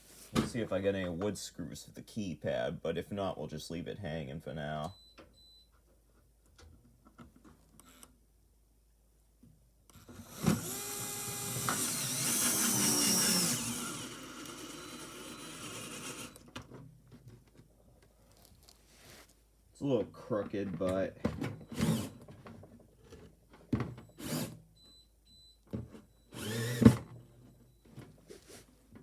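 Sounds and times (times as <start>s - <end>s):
electric drill driving a screw: 10.0s - 16.5s, 21.7s - 22.2s, 24.2s - 24.6s, 26.3s - 27.1s.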